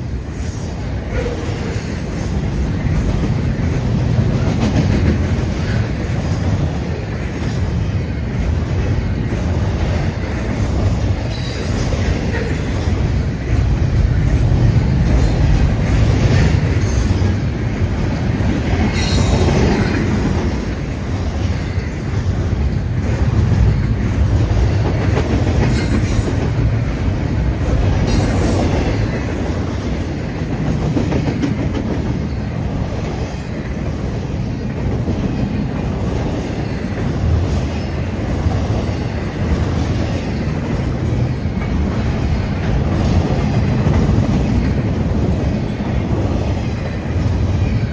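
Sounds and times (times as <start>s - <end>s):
train wheels rumbling on rails: 0.0s - 47.9s.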